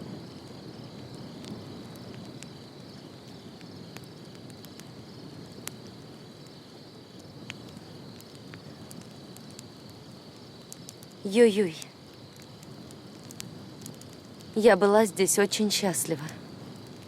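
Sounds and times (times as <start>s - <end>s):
insects trilling: 0.0s - 17.0s
faint clicks: 10.6s - 11.2s, 11.8s - 14.5s.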